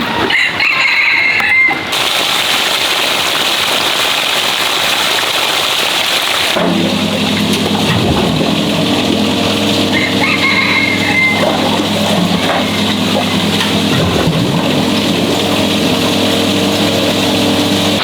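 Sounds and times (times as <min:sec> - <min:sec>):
rushing water hiss: 0:01.9 - 0:06.6
small engine running: 0:01.9 - 0:18.0.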